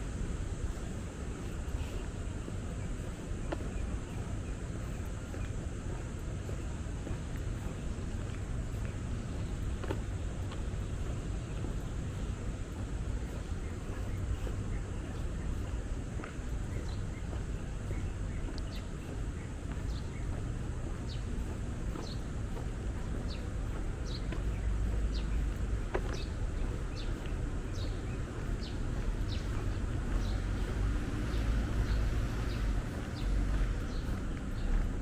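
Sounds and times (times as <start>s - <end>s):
city background rumble: 0.0s - 35.0s.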